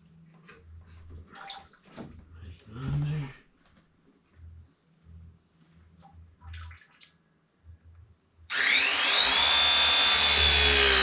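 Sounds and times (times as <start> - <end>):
pipe press tool motor whining: 8.5 - 11.0.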